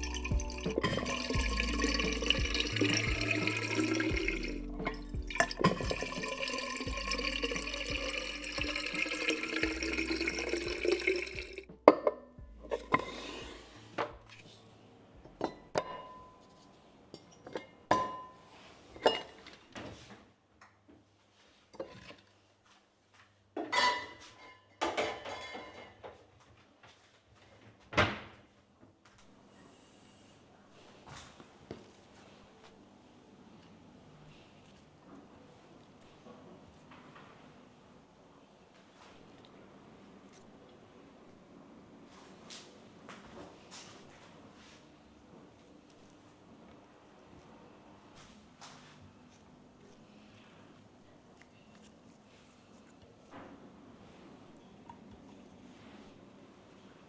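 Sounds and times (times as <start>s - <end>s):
dishes and glass clinking: 0.0s - 13.2s, 15.4s - 16.6s, 17.2s - 19.6s, 23.6s - 26.1s
soft background music: 0.0s - 17.0s.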